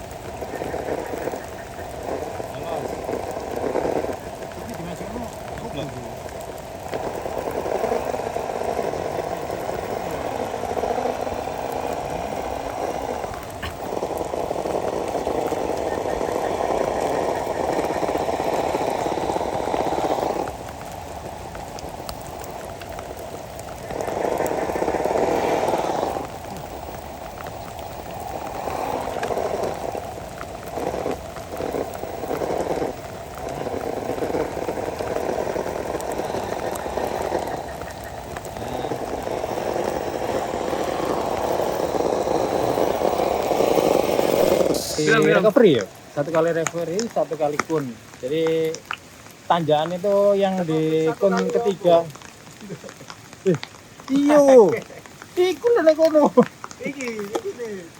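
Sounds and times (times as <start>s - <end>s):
rc car electric motor whirring: 0.0s - 45.6s
steady rain falling: 0.0s - 57.9s.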